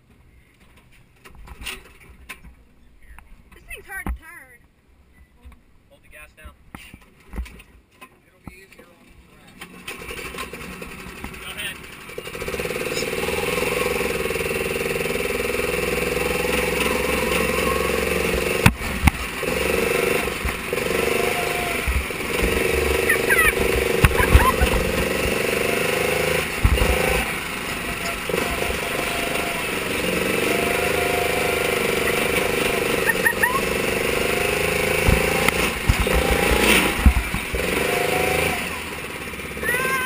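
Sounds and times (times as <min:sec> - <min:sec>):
small race car engine running: 0:09.8 - 0:40.0
sharp knocks: 0:18.3 - 0:21.2, 0:21.8 - 0:27.3, 0:34.4 - 0:37.9.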